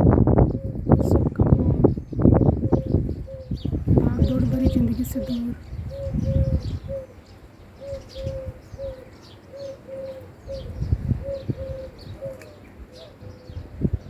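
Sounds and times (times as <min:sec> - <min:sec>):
small birds chirping: 0:00.0 - 0:14.0
bird hooting: 0:02.5 - 0:13.7.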